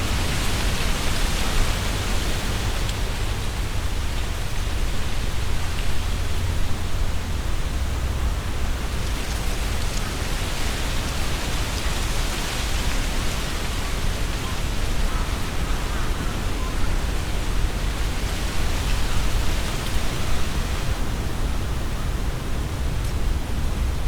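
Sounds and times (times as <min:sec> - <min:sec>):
leaves rustling in gusting wind: 0:00.0 - 0:24.0
wind rumble on microphone: 0:00.0 - 0:24.0.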